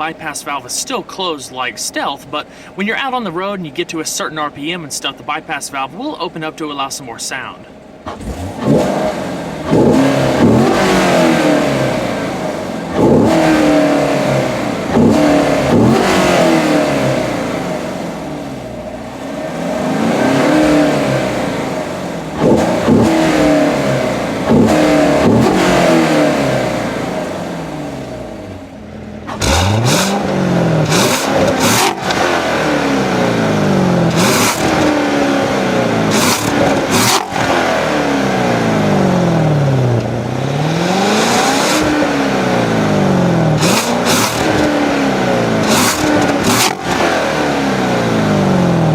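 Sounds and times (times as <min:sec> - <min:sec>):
car engine revving: 0:07.6 - 0:48.9.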